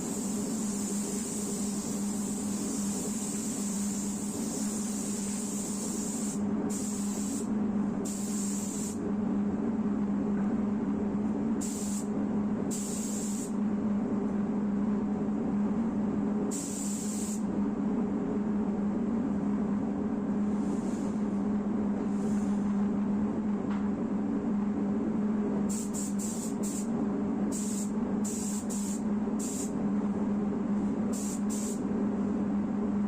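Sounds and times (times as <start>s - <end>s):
spray gun hissing: 0.0s - 9.0s, 11.6s - 12.1s, 12.7s - 13.5s, 16.5s - 17.4s, 25.7s - 26.8s, 27.5s - 29.7s, 31.1s - 31.8s
steady low hum: 0.0s - 33.0s.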